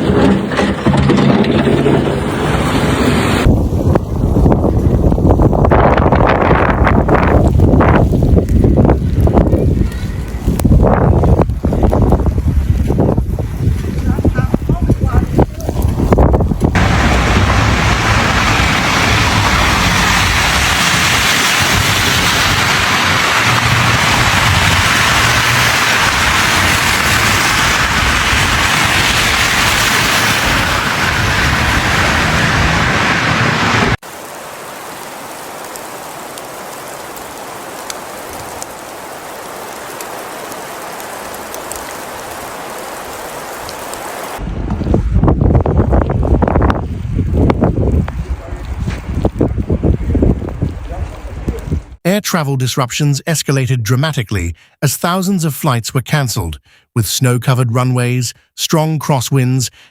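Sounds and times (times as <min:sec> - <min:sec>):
low rumble: 0:00.0 - 0:34.0
storm wind: 0:00.0 - 0:52.0.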